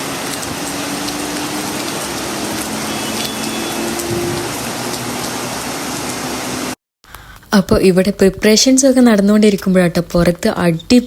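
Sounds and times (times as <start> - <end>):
heavy rain falling: 0.0 - 6.8.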